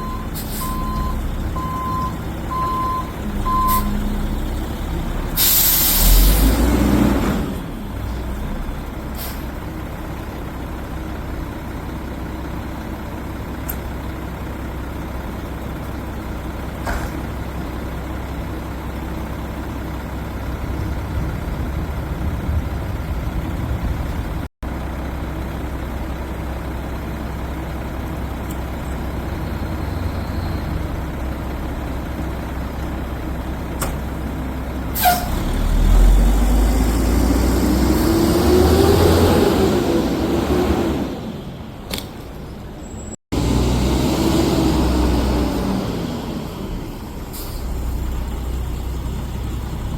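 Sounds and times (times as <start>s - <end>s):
garbage truck engine rumbling: 0.0s - 49.9s
air brake hiss: 0.4s - 0.8s, 5.4s - 6.4s, 9.2s - 9.5s, 35.0s - 35.4s, 47.3s - 47.8s.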